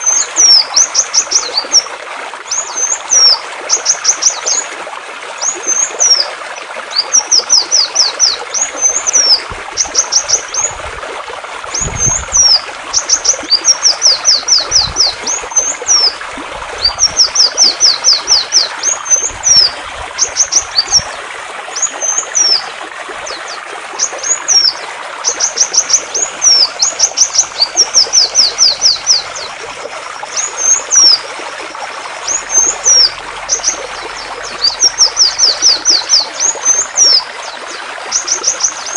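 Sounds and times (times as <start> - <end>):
songbird singing: 0.0 - 1.9, 11.8 - 29.6, 32.2 - 38.9
flowing water: 0.0 - 38.9.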